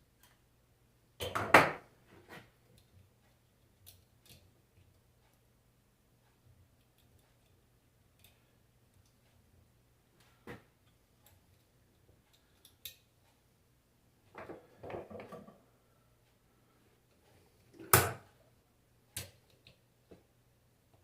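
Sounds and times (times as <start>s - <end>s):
tools knocking and rattling: 14.4s - 15.6s.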